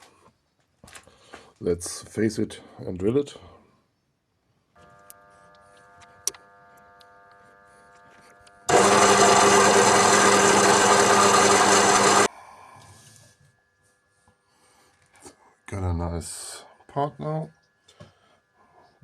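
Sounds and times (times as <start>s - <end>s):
machine tool motor humming: 8.7s - 12.3s
metal cutting and drilling: 8.7s - 12.3s.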